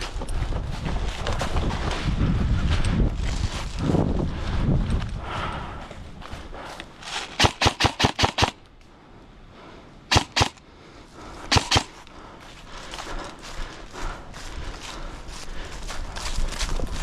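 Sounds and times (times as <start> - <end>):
airsoft gun shots: 7.4 - 8.6, 10.1 - 10.6, 11.5 - 12.0.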